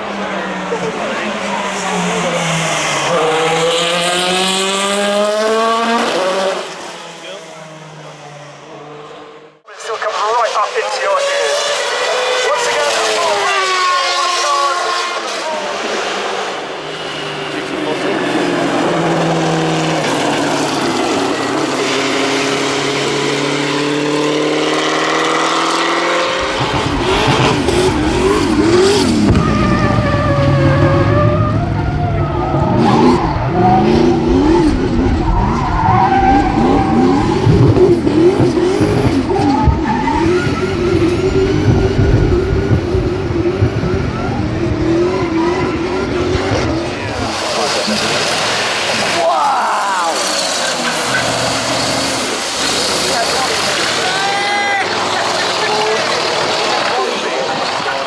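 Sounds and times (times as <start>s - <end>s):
car engine revving: 0.0s - 58.0s
tyres squealing: 46.9s - 58.0s.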